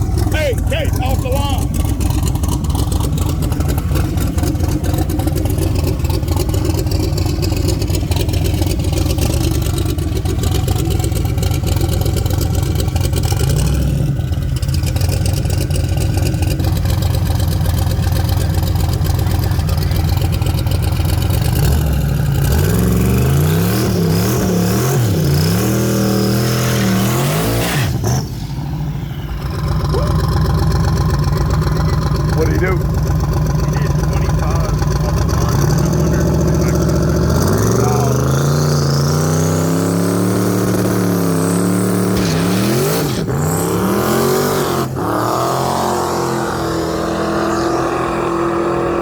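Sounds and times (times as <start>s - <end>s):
car engine revving hard: 0.0s - 28.6s, 29.3s - 49.0s.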